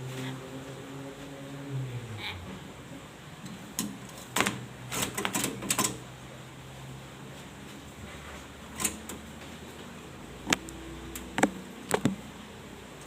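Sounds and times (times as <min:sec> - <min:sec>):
low humming tone: 0:00.0 - 0:03.6.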